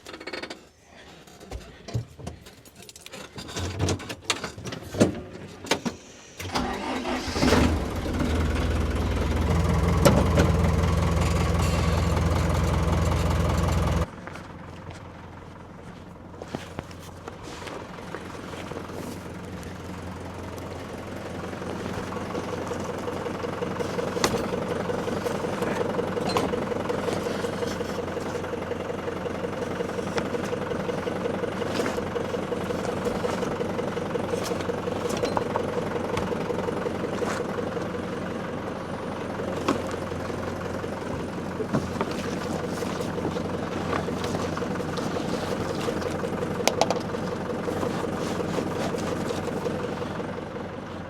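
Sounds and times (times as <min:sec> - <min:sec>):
clicks and clanks: 0:01.5 - 0:06.0
vehicle engine running: 0:06.5 - 0:51.0.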